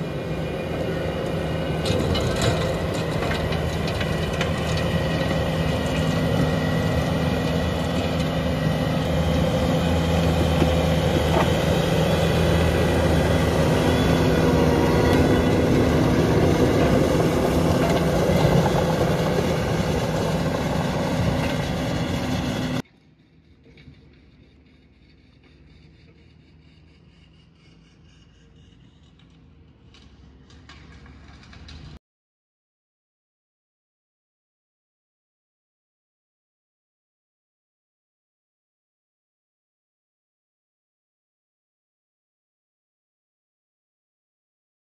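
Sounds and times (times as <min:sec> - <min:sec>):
loud machine sound: 0:00.0 - 0:23.7
engine hum: 0:00.0 - 0:32.0.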